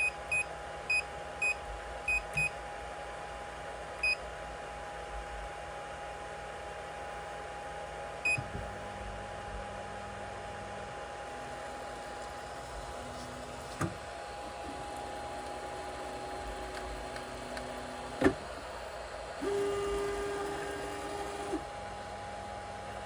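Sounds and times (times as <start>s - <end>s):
fan whine: 0.0s - 23.0s
stepper motor tones: 11.3s - 23.0s.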